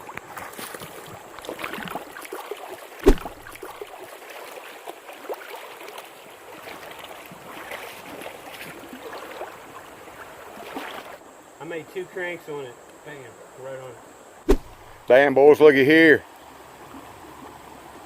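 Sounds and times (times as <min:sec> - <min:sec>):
creek running: 0:00.0 - 0:18.0
sharp thump: 0:03.0 - 0:03.6, 0:14.4 - 0:15.0.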